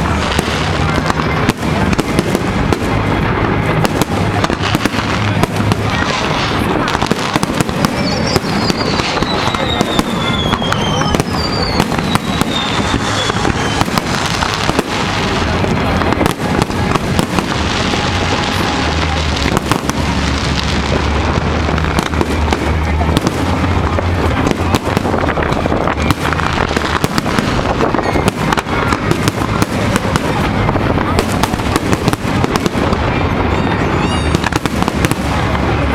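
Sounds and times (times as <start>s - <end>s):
fireworks bangs and crackling: 0.0s - 35.9s
falling firework whistle: 7.3s - 15.6s, 31.1s - 35.5s.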